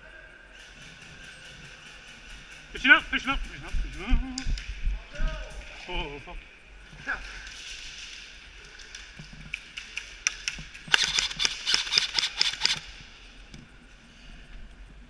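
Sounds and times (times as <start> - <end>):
airsoft gun cracks: 10.3 - 12.9.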